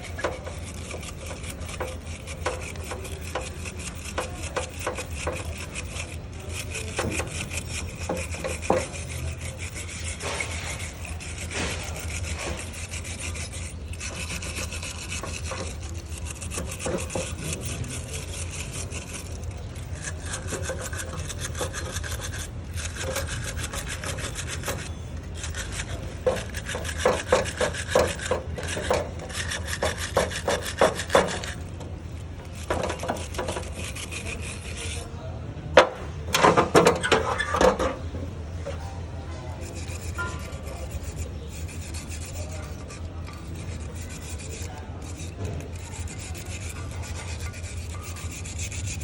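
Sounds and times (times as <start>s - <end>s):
hand tool scraping metal: 0.0s - 49.0s.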